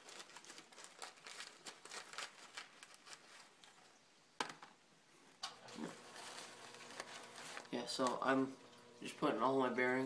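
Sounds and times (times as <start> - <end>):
paper filter rustling: 0.0 - 3.9, 5.7 - 8.6.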